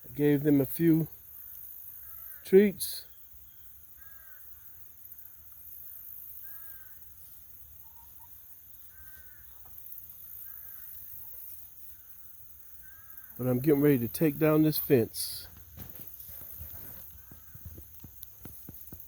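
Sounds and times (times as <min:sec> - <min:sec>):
harsh caw-like bird calls: 0:01.9 - 0:02.5, 0:04.0 - 0:04.8, 0:06.4 - 0:07.1, 0:08.8 - 0:13.4, 0:16.8 - 0:17.9.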